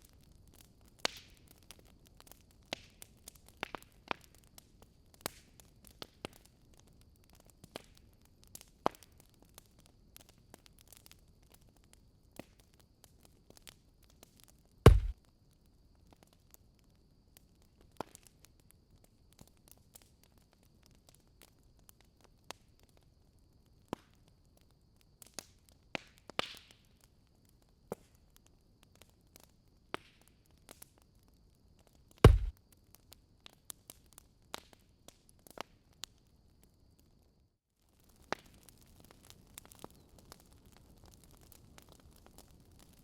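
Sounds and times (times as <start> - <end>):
wood fire crackling: 0.0 - 16.4, 25.2 - 36.8, 37.8 - 43.0
loud low thump: 14.9 - 15.1, 32.3 - 32.5.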